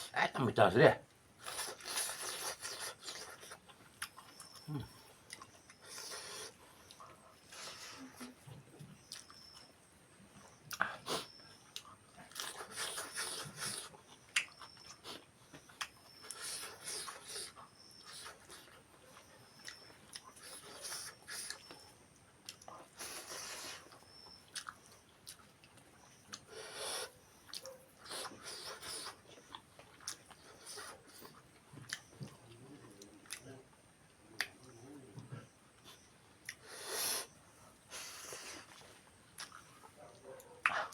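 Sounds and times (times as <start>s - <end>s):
person chewing and biting: 1.4s - 8.0s, 10.7s - 18.8s, 22.4s - 32.4s.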